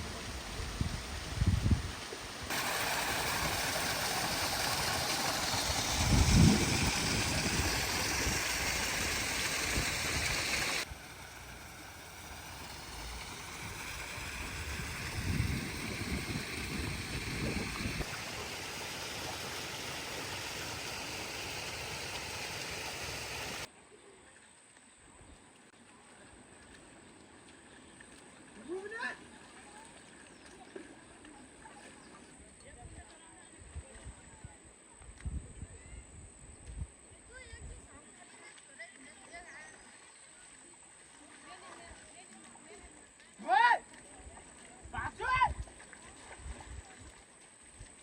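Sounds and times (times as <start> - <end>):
flowing water rushing: 0.0 - 23.7.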